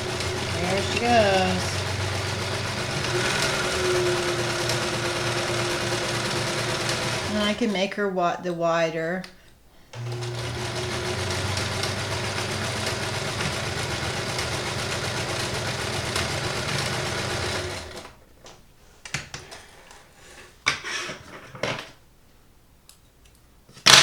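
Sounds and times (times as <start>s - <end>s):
sewing machine running: 0.0s - 7.8s, 10.0s - 18.2s.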